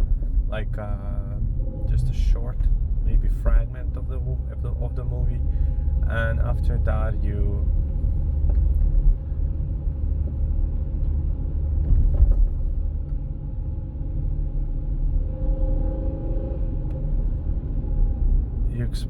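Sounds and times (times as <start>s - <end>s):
car rumbling in motion: 0.0s - 19.0s.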